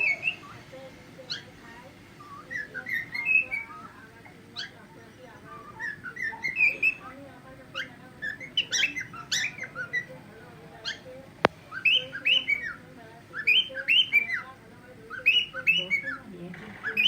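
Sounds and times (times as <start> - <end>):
cockatiel chirps and whistles: 0.0 - 0.6, 1.3 - 1.5, 2.2 - 4.0, 5.4 - 10.1, 11.7 - 14.5.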